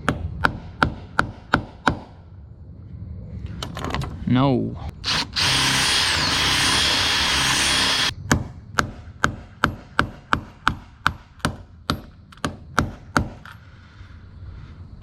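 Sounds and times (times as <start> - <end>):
power drill running: 5.0 - 8.1.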